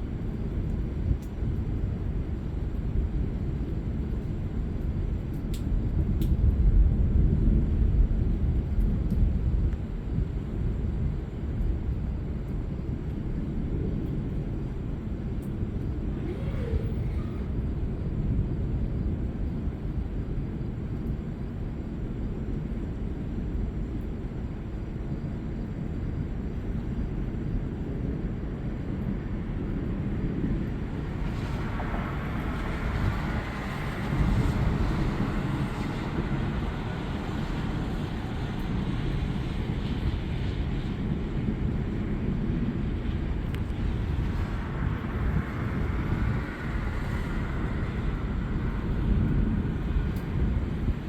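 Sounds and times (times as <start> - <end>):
steady low storm rumble: 0.0 - 51.0
thunder rolling: 31.1 - 40.4.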